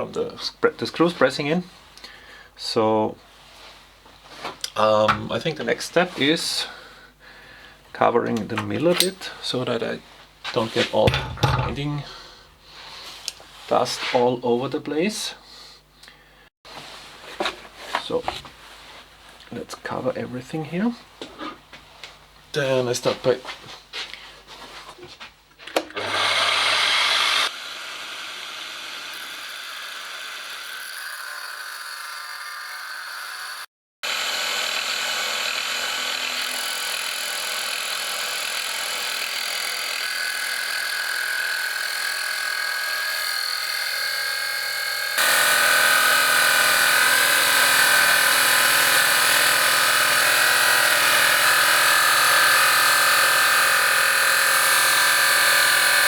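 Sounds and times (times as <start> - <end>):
cut-off disc grinding metal: 10.8 - 12.3, 26.0 - 56.0.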